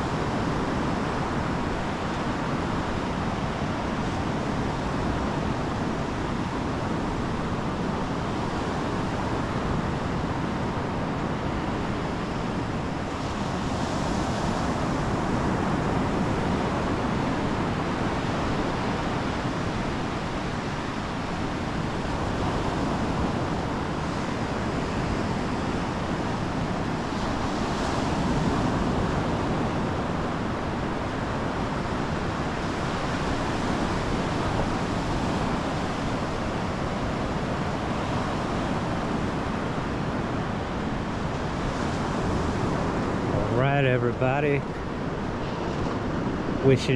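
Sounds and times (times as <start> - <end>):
ocean surf breaking: 10.4 - 46.9.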